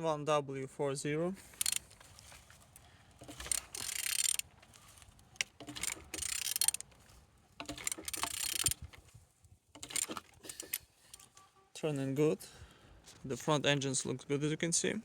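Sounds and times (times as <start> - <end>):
engine turned over by hand: 1.5 - 2.1, 3.2 - 9.1, 9.8 - 11.3.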